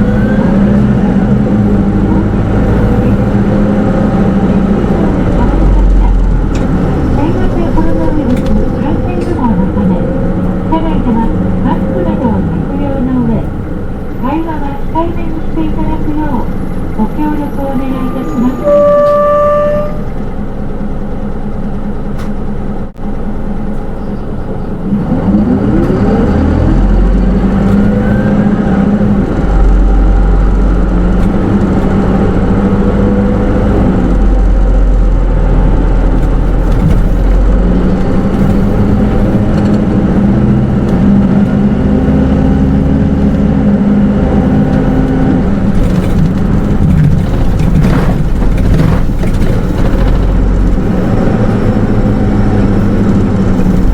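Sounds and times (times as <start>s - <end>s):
bus engine from inside cabin: 0.0s - 53.9s.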